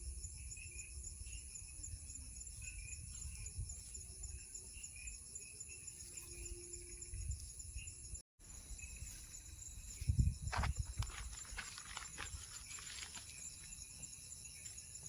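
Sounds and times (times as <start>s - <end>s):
crickets and insects trilling: 0.0s - 15.0s.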